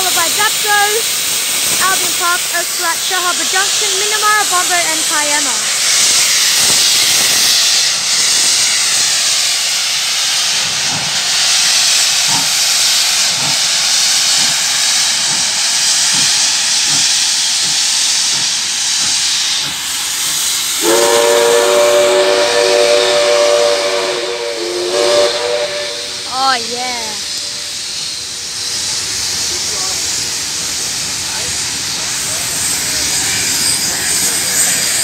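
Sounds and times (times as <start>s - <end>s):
steam locomotive hissing: 0.0s - 35.0s
steam whistle chord: 20.8s - 26.6s.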